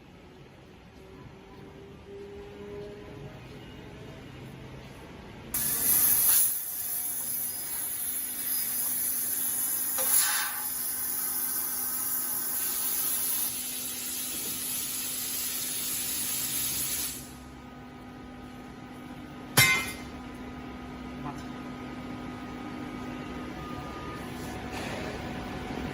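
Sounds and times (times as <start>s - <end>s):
hiss of gas jetting: 5.6s - 17.4s.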